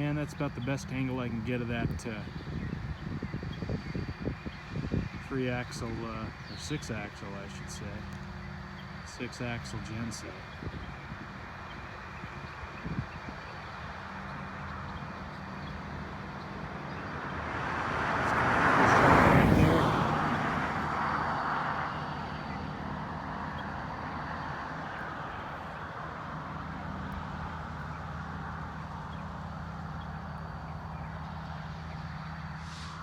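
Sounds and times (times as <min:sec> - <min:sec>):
low engine drone: 0:00.0 - 0:33.0
vehicle passing close by: 0:10.2 - 0:33.0.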